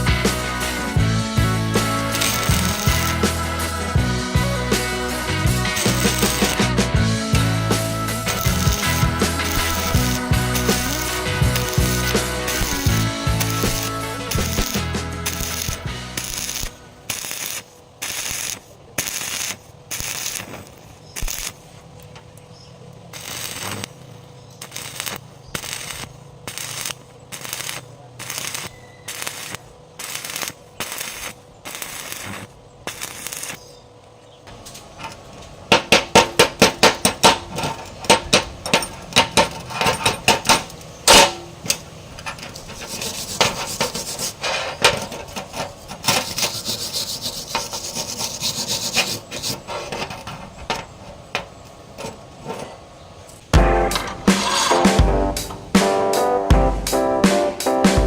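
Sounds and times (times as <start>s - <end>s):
hand tool rasping strokes: 1.9s - 4.0s, 4.6s - 6.8s, 7.4s - 21.5s, 35.7s - 50.9s, 54.2s - 55.0s.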